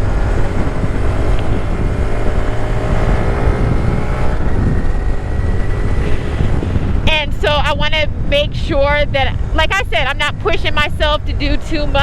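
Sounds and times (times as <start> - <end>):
motorcycle engine running: 0.0 - 12.0
wind rumble on microphone: 0.0 - 12.0.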